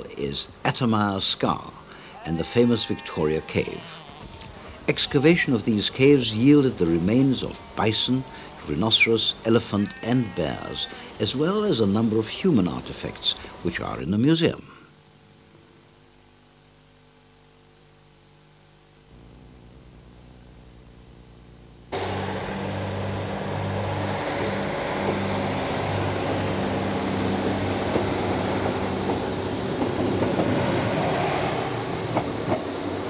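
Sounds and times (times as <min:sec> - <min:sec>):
quiet steady hum: 0:00.0 - 0:24.5
faint high whine: 0:00.0 - 0:33.0
train running on tracks: 0:04.2 - 0:09.8, 0:22.0 - 0:33.0.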